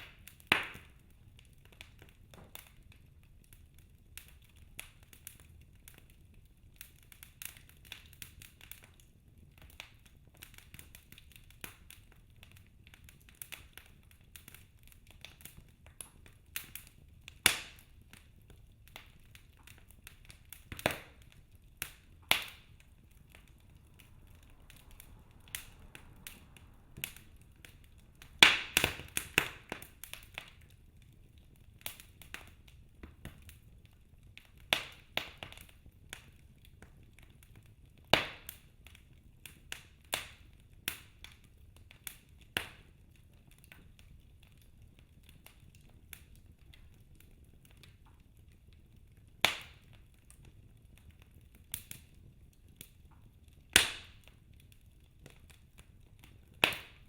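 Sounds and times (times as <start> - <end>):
wood fire crackling: 0.0 - 57.0
faint low rumble: 18.0 - 31.8.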